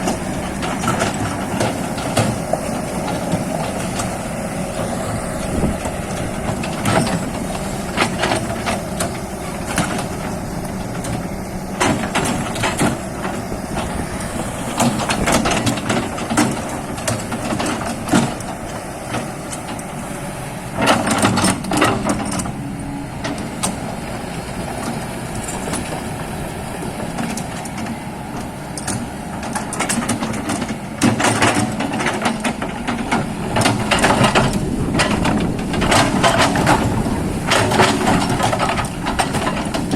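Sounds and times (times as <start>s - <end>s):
excavator diesel engine running: 0.0s - 39.9s
machine knocks and clatters in mud: 4.8s - 19.8s, 20.8s - 22.5s, 28.8s - 39.9s.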